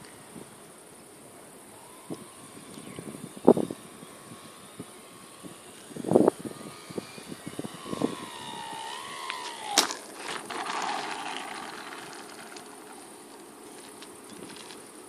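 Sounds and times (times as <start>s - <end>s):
model plane motor whining: 1.7s - 14.8s
sharp crack: 9.3s - 13.5s.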